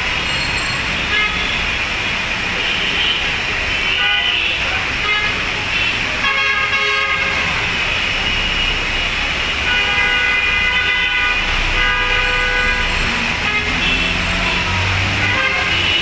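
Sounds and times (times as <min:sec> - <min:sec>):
heavy rain hissing: 0:00.0 - 0:16.0
vehicle horns honking: 0:00.3 - 0:01.8, 0:09.5 - 0:16.0.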